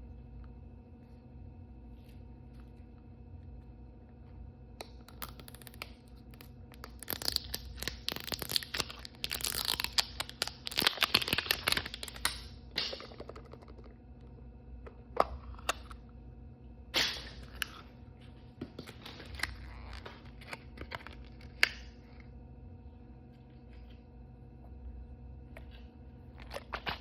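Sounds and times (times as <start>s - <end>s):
plastic packaging tearing and crinkling: 5.0s - 12.5s.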